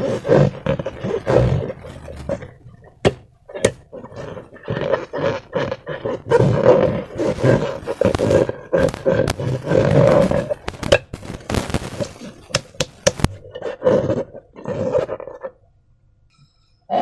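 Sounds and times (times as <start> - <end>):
sharp clicks: 8.0 - 13.4.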